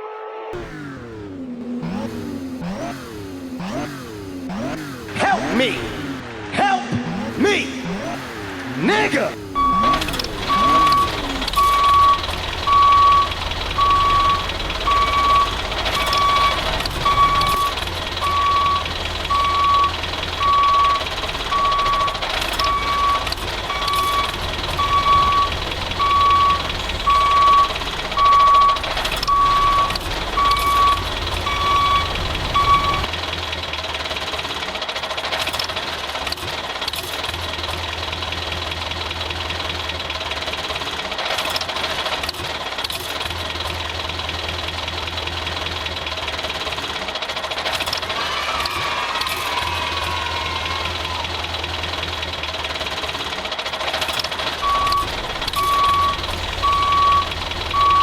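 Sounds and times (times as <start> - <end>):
truck engine running: 0.6 - 48.2, 49.1 - 58.0
truck reversing alarm beeping: 7.1 - 33.1, 54.5 - 58.0.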